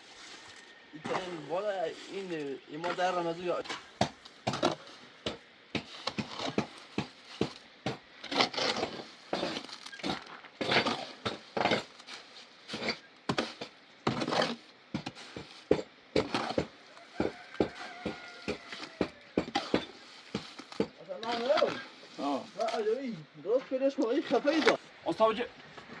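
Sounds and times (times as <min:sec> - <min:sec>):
stones and tools knocking: 0:02.8 - 0:11.9, 0:12.7 - 0:21.9
rasping scrapes: 0:04.5 - 0:22.8.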